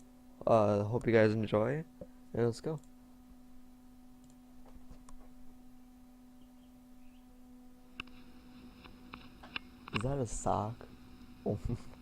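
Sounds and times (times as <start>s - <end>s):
faint electrical hum: 0.0s - 12.0s
soft clicks: 4.2s - 4.4s.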